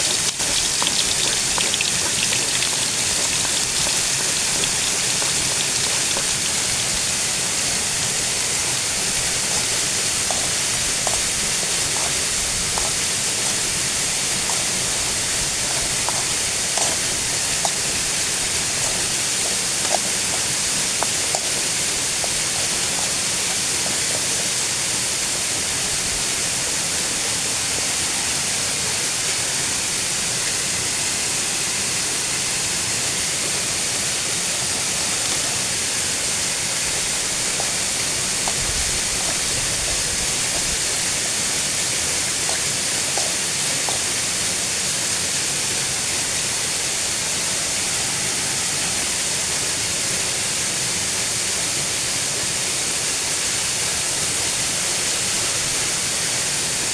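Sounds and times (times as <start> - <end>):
waterfall rushing: 0.0 - 26.7.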